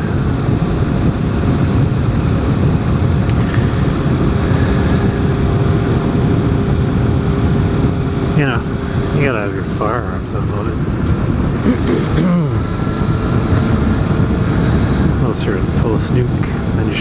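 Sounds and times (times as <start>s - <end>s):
motorcycle engine drone: 0.0s - 17.0s
wind rushing over microphone: 0.0s - 17.0s.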